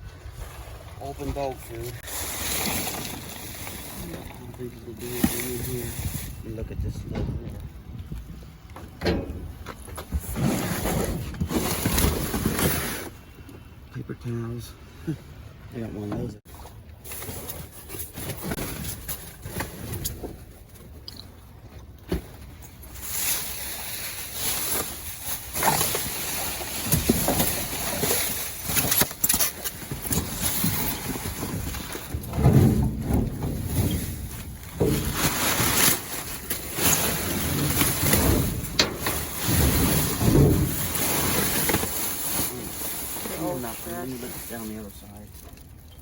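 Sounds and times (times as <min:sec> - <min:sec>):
storm wind buffeting microphone: 0:05.6 - 0:08.7.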